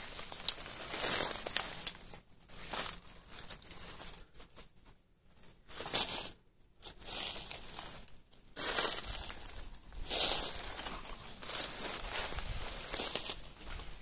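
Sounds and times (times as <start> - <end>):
leaves crunching underfoot: 0.0 - 4.3, 5.7 - 14.0.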